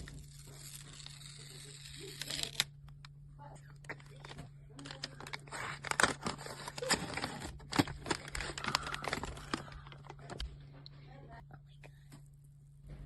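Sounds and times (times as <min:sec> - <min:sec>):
wrapper crinkling: 0:00.0 - 0:02.7, 0:03.8 - 0:10.4.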